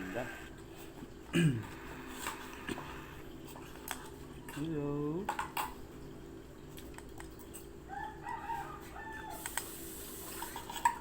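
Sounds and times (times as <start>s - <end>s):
rooster crowing: 7.9s - 9.7s.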